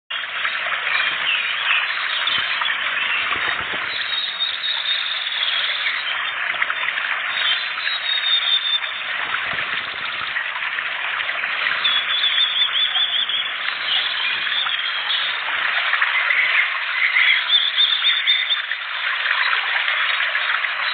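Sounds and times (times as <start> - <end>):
songbirds chirping: 11.6 - 20.9.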